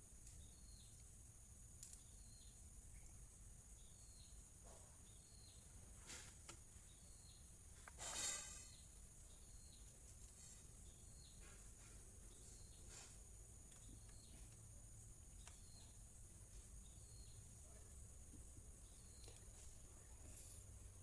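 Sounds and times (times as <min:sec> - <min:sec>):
faint ticks or chirps: 0:00.2 - 0:04.4, 0:12.3 - 0:20.7.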